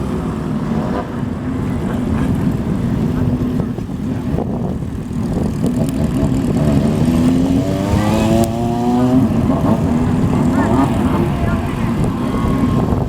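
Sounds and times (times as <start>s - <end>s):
motorcycle engines rumbling: 0.0s - 13.0s
motorcycle engine revving up: 5.1s - 13.0s.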